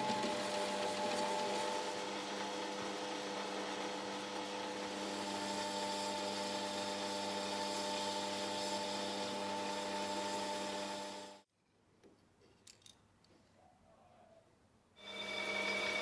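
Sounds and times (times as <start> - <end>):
power tool motor humming: 0.0 - 11.4.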